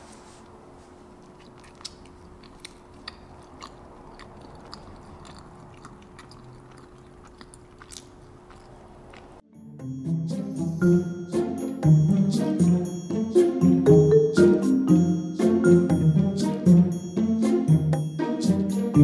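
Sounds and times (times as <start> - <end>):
person chewing: 1.1 - 9.4
mouth clicks: 1.3 - 9.4
background music: 9.4 - 19.0.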